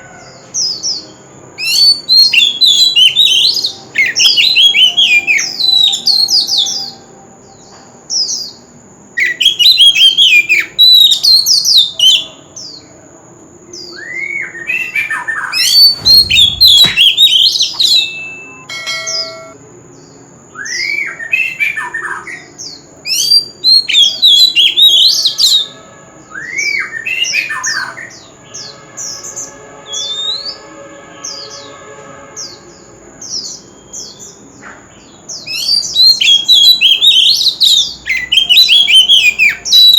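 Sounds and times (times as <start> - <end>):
bird singing whistled phrases: 1.6 - 7.0, 9.2 - 12.3, 13.8 - 19.6, 35.4 - 39.9
thin steady high tone: 16.8 - 19.8.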